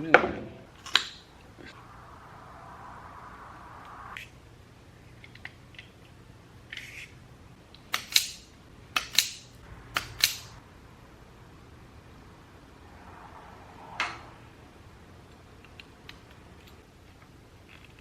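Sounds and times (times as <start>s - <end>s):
wire cutter snapping: 7.9s - 10.6s.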